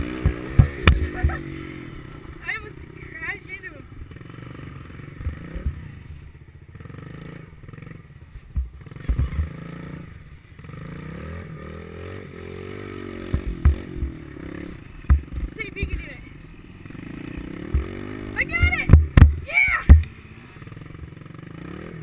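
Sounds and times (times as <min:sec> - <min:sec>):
small motorbike engine running: 0:00.0 - 0:22.0
dull thumps: 0:00.2 - 0:01.4, 0:13.3 - 0:14.2, 0:15.0 - 0:16.2, 0:17.7 - 0:20.1.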